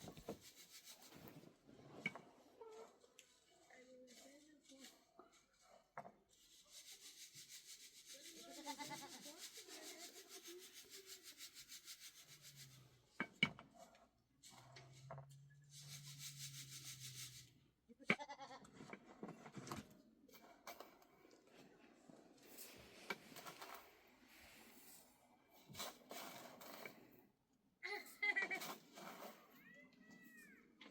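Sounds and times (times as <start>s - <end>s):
rapid rhythmic rubbing: 6.4s - 13.0s, 15.7s - 17.6s.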